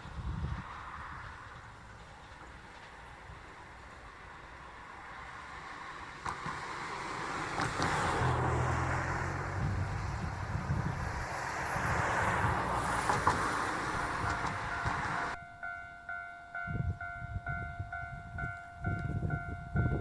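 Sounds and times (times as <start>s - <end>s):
train passing: 0.0s - 20.0s
low rumbles: 8.2s - 15.4s.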